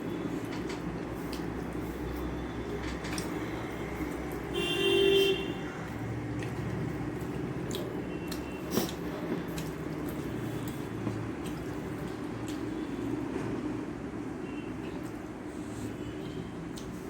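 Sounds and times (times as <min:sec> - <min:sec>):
faint eating clicks: 0:02.6 - 0:04.5, 0:05.8 - 0:13.6, 0:16.7 - 0:17.0
vehicle horn toot: 0:04.5 - 0:05.6.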